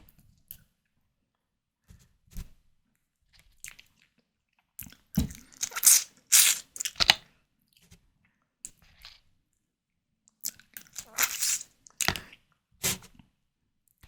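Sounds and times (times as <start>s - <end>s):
biting and chewing: 5.2s - 7.2s, 10.4s - 12.3s.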